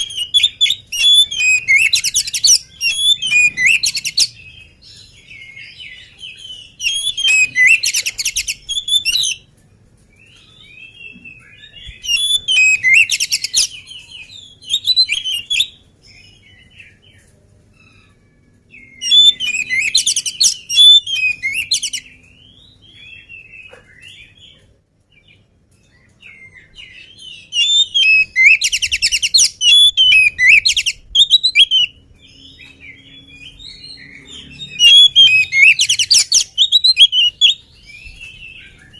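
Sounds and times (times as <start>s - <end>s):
bird trilling and whistling: 0.0s - 9.4s, 11.3s - 15.8s, 18.8s - 23.3s, 26.6s - 38.9s
soft bird twittering: 0.0s - 9.5s, 10.3s - 24.4s, 25.8s - 38.9s.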